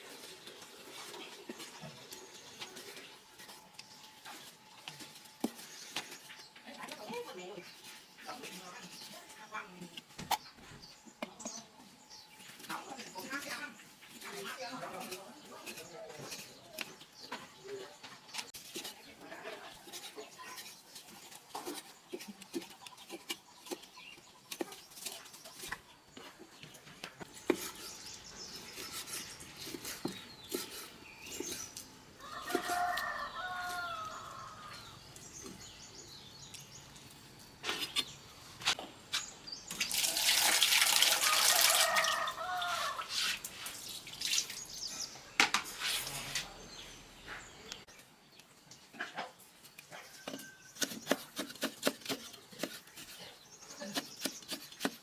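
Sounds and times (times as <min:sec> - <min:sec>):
rooster crowing: 0:32.2 - 0:34.9, 0:41.2 - 0:43.1.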